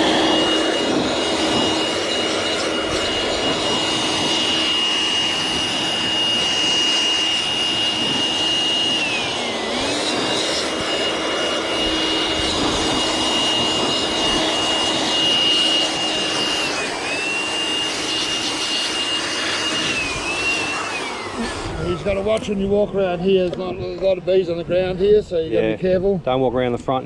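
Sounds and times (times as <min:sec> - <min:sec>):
motor-driven blower whining: 0:00.0 - 0:26.1.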